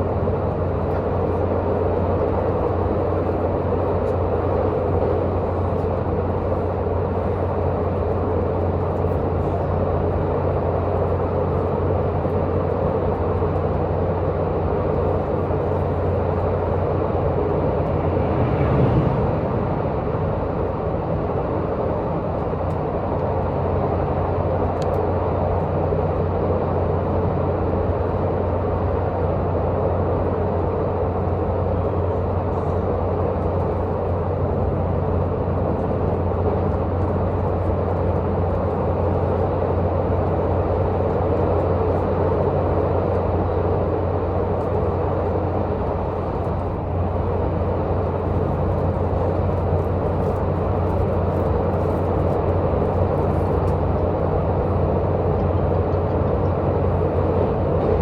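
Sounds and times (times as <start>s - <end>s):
train diesel engine running: 0.0s - 58.0s.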